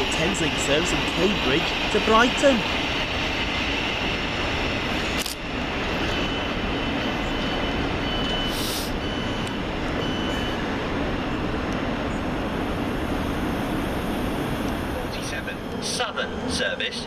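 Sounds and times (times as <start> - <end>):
electric train running past: 0.0 - 17.0
short hiss: 8.5 - 8.9.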